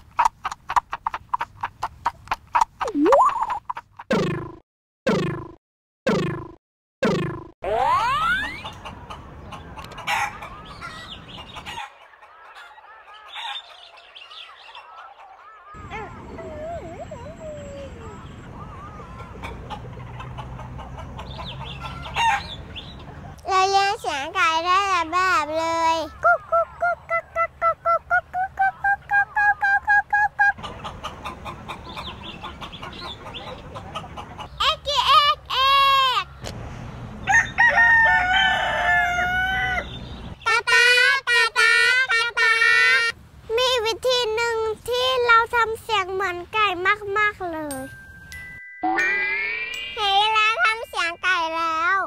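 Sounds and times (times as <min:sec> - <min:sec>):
chickens clucking: 0:00.0 - 0:04.0, 0:08.4 - 0:23.4, 0:26.1 - 0:35.7
children's voices: 0:23.4 - 0:30.4, 0:34.5 - 0:36.3, 0:40.5 - 0:47.9, 0:50.0 - 0:52.0
rooster crowing: 0:37.2 - 0:40.0.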